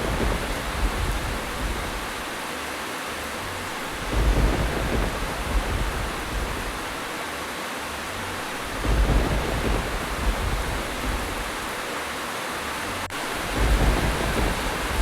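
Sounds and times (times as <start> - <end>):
low thunder rumbles: 0.0 - 2.4, 3.7 - 7.2, 8.4 - 11.8, 13.1 - 15.0
steady rain: 0.0 - 15.0.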